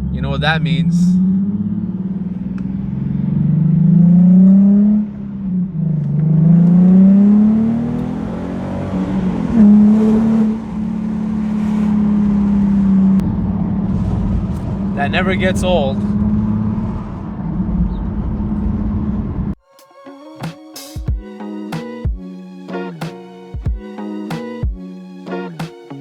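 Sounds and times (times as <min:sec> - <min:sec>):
car engine accelerating: 0:00.0 - 0:19.6.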